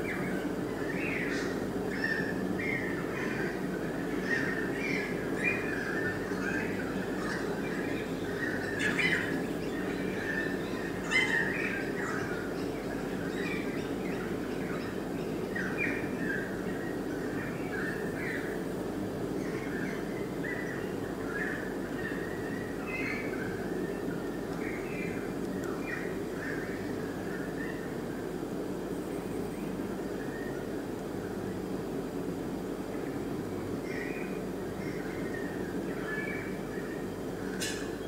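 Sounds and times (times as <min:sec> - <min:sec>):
birds chirping and squawking: 0:00.0 - 0:18.6, 0:33.8 - 0:38.0.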